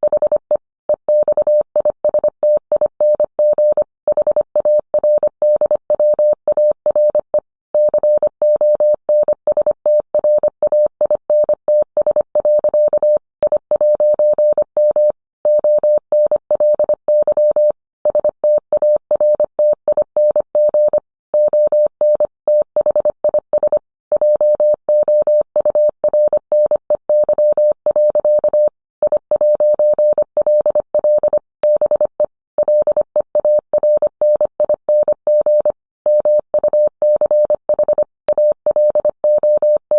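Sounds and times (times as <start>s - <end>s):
morse code tone: 19.3s - 39.9s.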